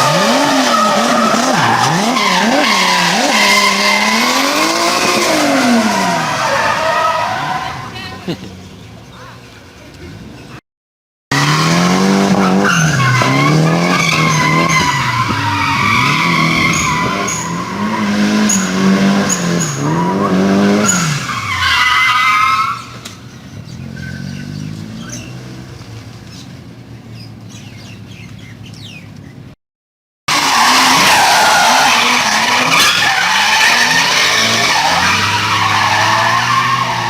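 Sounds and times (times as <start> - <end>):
car engine revving: 0.0 - 7.8, 11.3 - 21.7, 30.3 - 37.0
tyres squealing: 30.3 - 37.0.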